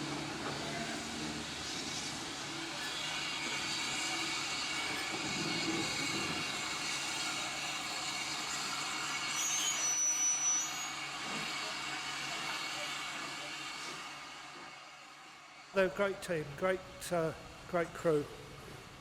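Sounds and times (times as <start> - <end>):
train rumbling on track: 0.0 - 9.7
high-pitched squeal: 0.6 - 12.9.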